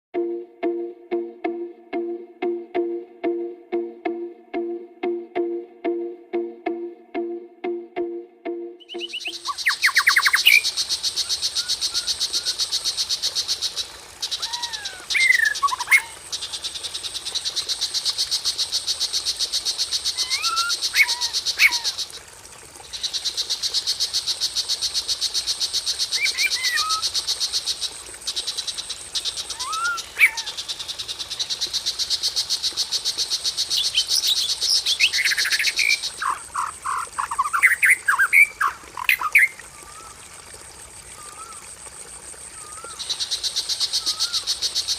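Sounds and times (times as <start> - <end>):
bird whistling sliding notes: 8.8 - 10.6
varied birdsong: 8.9 - 22.1, 28.3 - 32.4, 42.5 - 44.9.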